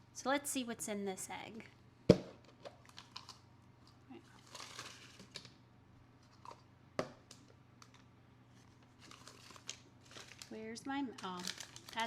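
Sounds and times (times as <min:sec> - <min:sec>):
plastic bags crinkling: 0:02.6 - 0:05.5, 0:08.6 - 0:12.0.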